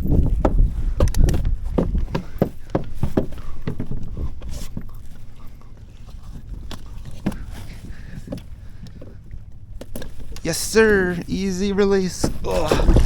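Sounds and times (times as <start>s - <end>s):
knocks and thumps on kayak: 0.1s - 4.8s, 12.2s - 13.0s.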